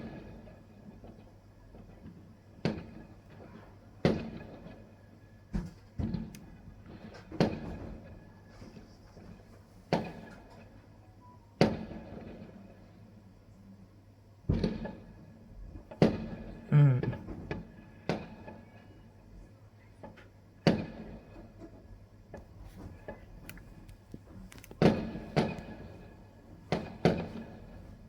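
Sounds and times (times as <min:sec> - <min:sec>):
fireworks bangs: 0:24.3 - 0:28.0.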